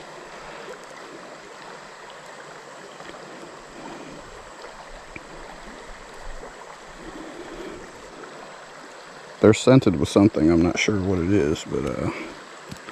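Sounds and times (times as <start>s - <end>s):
creek water rushing: 0.0s - 12.9s
faint small ticks: 0.7s - 3.6s, 4.6s - 7.2s, 12.6s - 12.9s.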